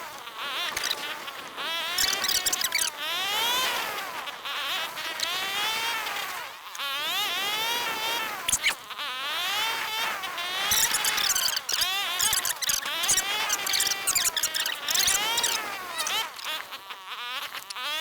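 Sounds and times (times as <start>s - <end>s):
motorbike engine revving: 9.4s - 16.7s.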